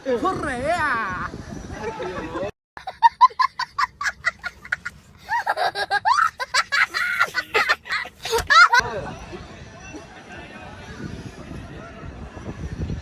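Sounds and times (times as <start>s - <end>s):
person laughing: 2.8s - 8.8s.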